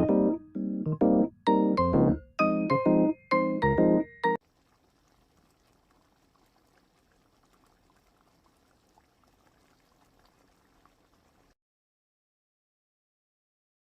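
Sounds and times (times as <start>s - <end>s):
piano music: 0.0s - 4.4s
curry bubbling in a pot: 4.4s - 11.6s.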